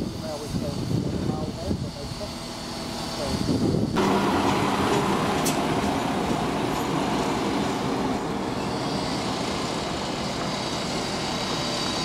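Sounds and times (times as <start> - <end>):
diesel train engine running: 0.0 - 12.0
train wheels on rails: 4.0 - 12.0.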